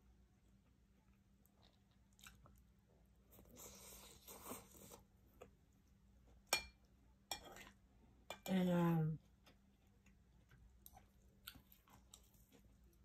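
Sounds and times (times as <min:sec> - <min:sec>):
person chewing food crunching: 0:01.0 - 0:05.6, 0:09.4 - 0:13.0.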